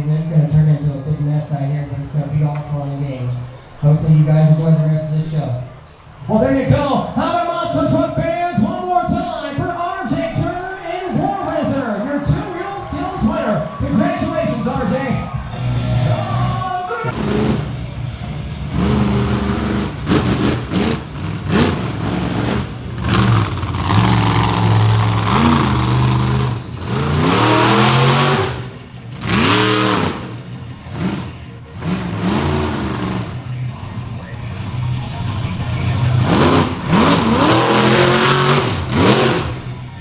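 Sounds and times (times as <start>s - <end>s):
truck engine revving: 17.0s - 40.0s.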